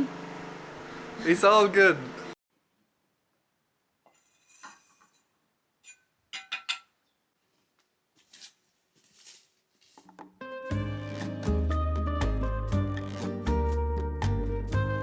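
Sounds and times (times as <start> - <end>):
soft rustles: 7.4 - 10.2.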